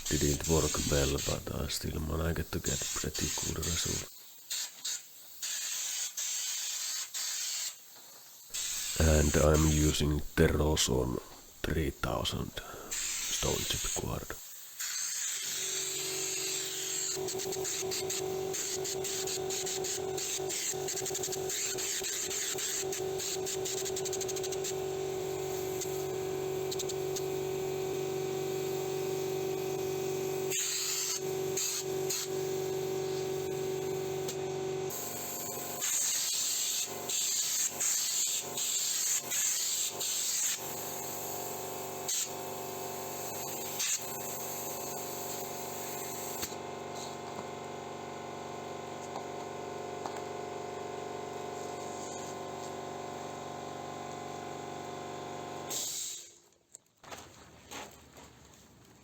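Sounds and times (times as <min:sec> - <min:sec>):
steady hum: 0:00.0 - 0:04.0, 0:08.7 - 0:14.4
spray gun hissing: 0:00.0 - 0:47.2.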